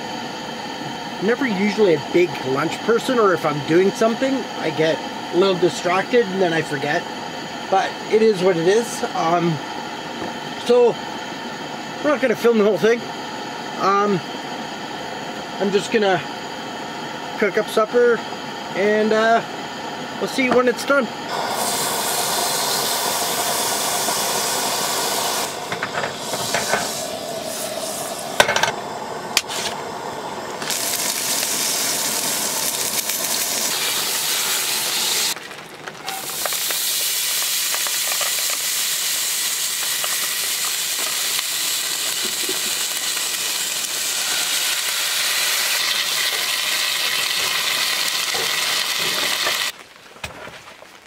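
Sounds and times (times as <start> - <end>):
food sizzling in a pan: 20.3 - 28.7, 30.6 - 49.8.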